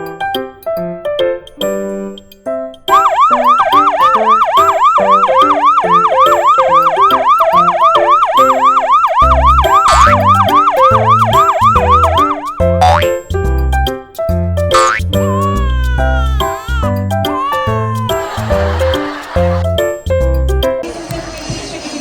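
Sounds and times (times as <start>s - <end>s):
siren rising and falling: 2.9s - 13.0s
upbeat music: 3.0s - 14.0s, 14.7s - 20.4s
heavy bass beat: 9.3s - 12.8s.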